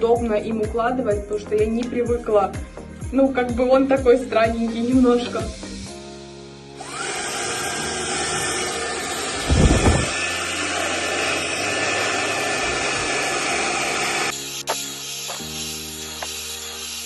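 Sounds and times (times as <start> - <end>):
hair dryer blowing air: 4.5 - 6.0, 6.8 - 17.0.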